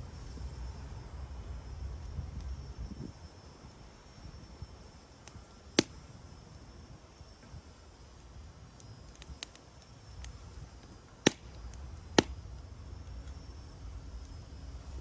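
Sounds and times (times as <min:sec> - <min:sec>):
wood fire crackling: 0:00.0 - 0:15.0
loud sharp fire pops: 0:05.2 - 0:06.1, 0:10.2 - 0:13.4.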